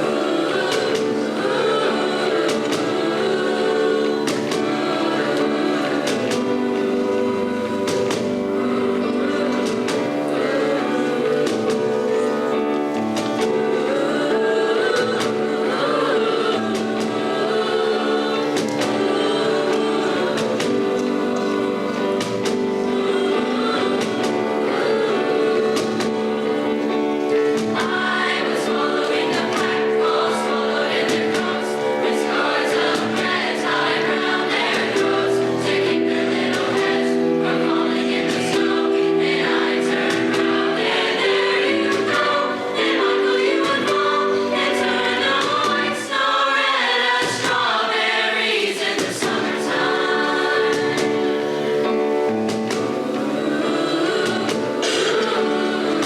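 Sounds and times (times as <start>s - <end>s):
choir singing in harmony: 0.0s - 56.0s.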